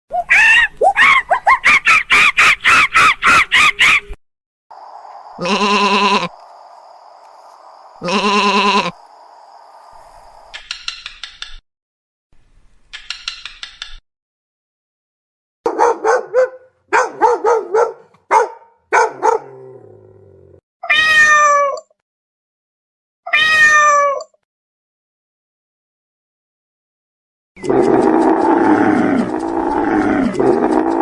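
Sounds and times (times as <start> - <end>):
rapid high chattering: 4.8 - 10.6
short yowling calls: 4.8 - 10.6
cat meowing: 5.4 - 6.3, 8.0 - 9.0, 20.8 - 21.8, 23.3 - 24.2.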